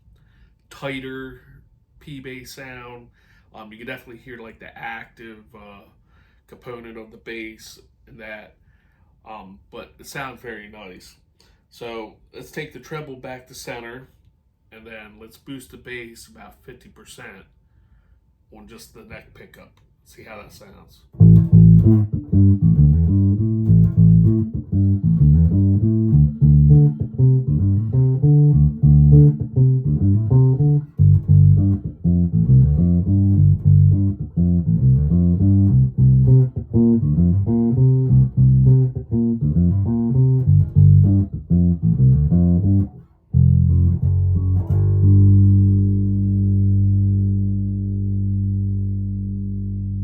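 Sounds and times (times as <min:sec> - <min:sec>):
electric bass plucked notes: 0:21.2 - 0:50.0.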